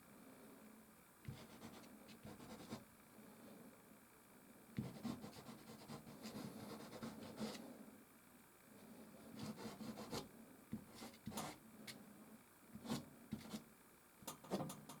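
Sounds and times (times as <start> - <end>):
pastel scratching on canvas: 1.3 - 2.8, 4.8 - 7.6, 9.4 - 10.2.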